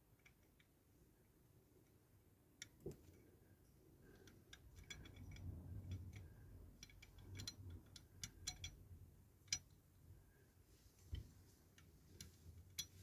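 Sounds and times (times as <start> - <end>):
small parts clicking and tapping: 0.0 - 0.8, 1.8 - 3.3, 4.0 - 9.9, 11.1 - 13.0
soft handling rustle: 9.5 - 13.0.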